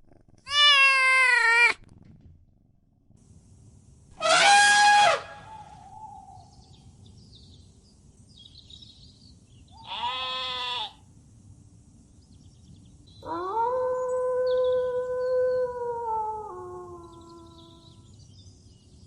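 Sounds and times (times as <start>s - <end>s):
farm animal bleating: 0.4s - 1.8s, 9.8s - 11.0s.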